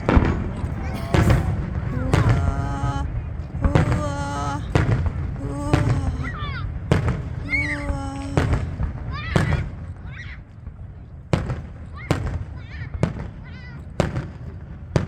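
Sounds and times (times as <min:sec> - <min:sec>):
fireworks booming: 0:00.0 - 0:09.9.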